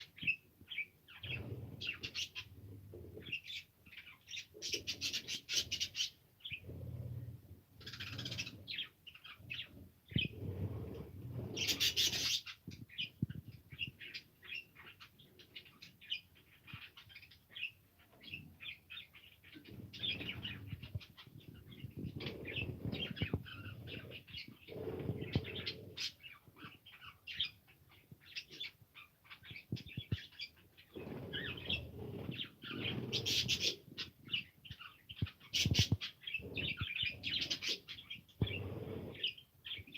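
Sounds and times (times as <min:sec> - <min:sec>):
budgerigars chirping: 0:03.2 - 0:06.7, 0:07.8 - 0:10.4, 0:11.5 - 0:13.1, 0:28.2 - 0:39.9.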